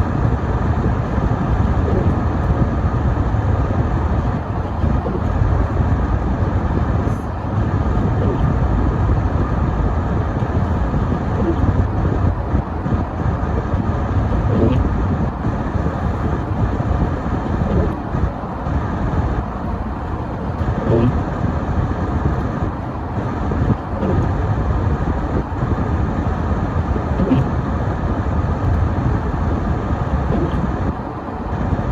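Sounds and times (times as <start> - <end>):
car road and engine rumble: 0.0 - 31.9.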